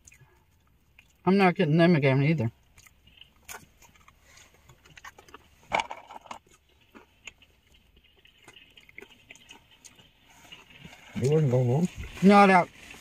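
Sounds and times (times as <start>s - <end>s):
quiet chewing: 0.0s - 1.2s, 2.5s - 13.0s
rustles: 2.8s - 13.0s.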